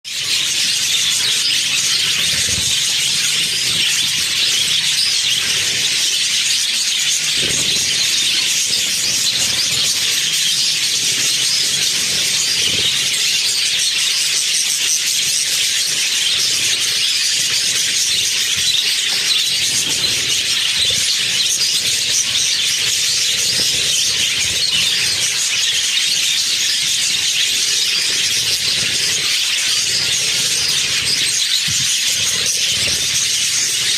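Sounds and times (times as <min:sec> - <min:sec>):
budgerigars chattering and chirping: 0:00.1 - 0:33.9.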